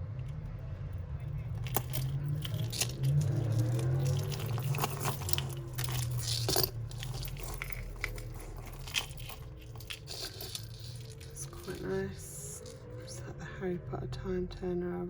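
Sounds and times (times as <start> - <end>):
crinkling: 1.1 - 13.2
metal chains and beads rattling: 1.2 - 13.2.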